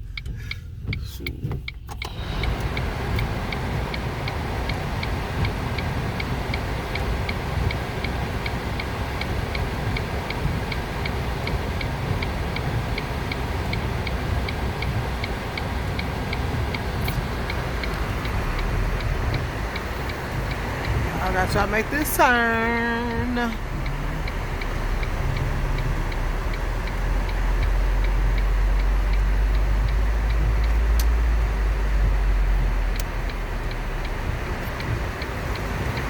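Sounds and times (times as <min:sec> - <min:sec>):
car driving on snowy road: 0:00.0 - 0:36.0
car turn signal ticking: 0:00.0 - 0:36.0.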